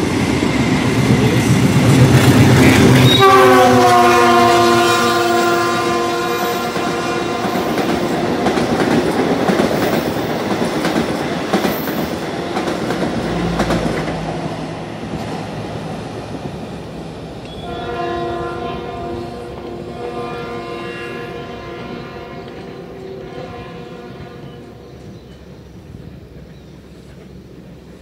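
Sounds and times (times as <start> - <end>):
multi-tone train horn: 2.1 - 8.7, 17.5 - 25.1
train wheels clattering: 6.3 - 15.7.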